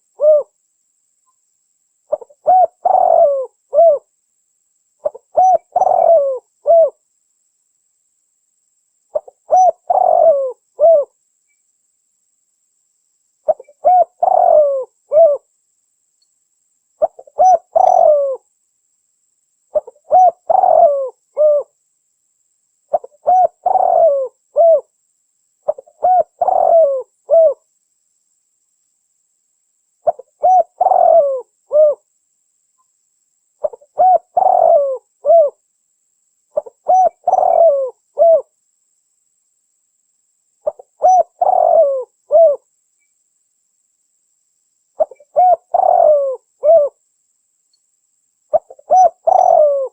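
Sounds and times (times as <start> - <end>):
dove cooing: 0.0 - 0.6, 2.1 - 4.1, 5.0 - 7.0, 9.1 - 11.1, 13.5 - 15.5, 17.0 - 18.4, 19.7 - 21.7, 22.9 - 24.9, 25.7 - 27.6, 30.0 - 32.0, 33.6 - 35.6, 36.6 - 38.5, 40.6 - 42.6, 45.0 - 47.0, 48.5 - 49.9.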